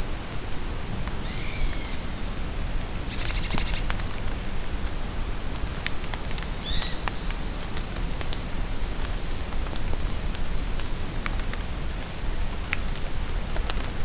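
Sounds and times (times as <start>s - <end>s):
rain falling in a forest: 0.0s - 14.0s
songbirds calling: 0.2s - 2.3s, 3.1s - 5.2s, 6.3s - 7.8s.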